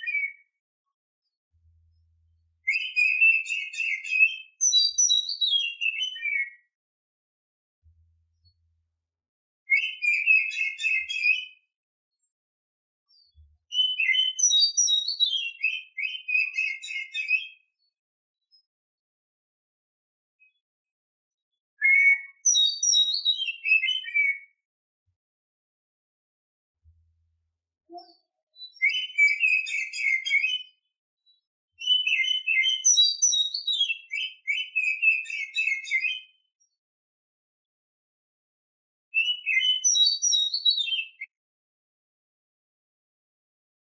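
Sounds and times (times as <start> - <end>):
bird singing whistled notes: 0.0 - 0.6, 2.6 - 6.7, 9.7 - 11.6, 13.2 - 17.9, 21.8 - 24.6, 27.9 - 36.4, 39.2 - 41.3.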